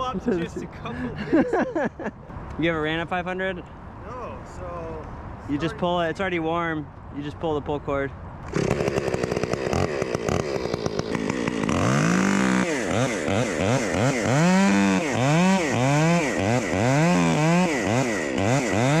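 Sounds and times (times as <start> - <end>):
chainsaw revving: 8.4 - 19.0.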